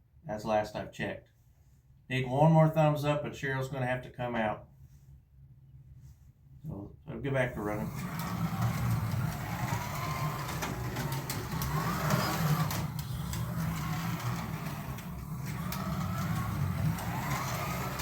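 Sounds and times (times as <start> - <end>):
slot car motors whining: 7.6 - 18.0.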